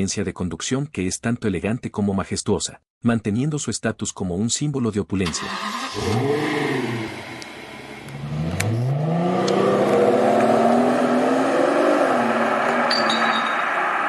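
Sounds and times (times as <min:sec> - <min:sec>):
car engine accelerating: 0:05.4 - 0:14.0.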